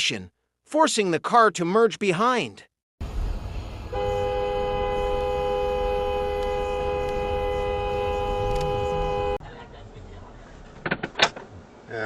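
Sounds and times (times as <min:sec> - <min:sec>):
low road rumble: 0:03.0 - 0:12.0
air horn long blast: 0:03.8 - 0:09.4.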